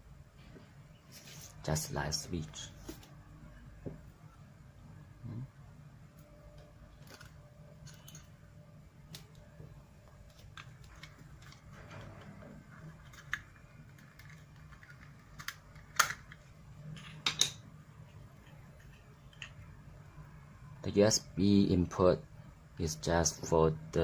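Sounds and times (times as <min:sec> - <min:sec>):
faint low hum: 0:00.0 - 0:24.0
plastic parts clicking: 0:13.0 - 0:16.4.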